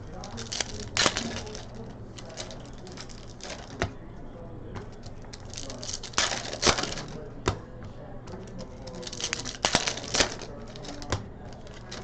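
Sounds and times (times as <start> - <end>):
cards clicking and snapping: 0.0 - 4.0, 4.8 - 7.2, 8.4 - 12.0.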